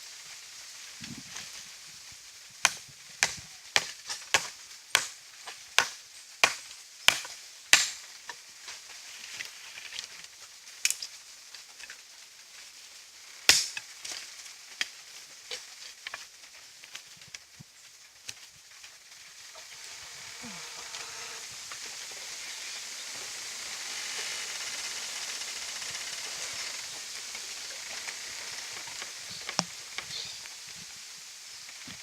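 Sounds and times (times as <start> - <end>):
wood being chopped: 2.6 - 8.0, 13.5 - 13.8.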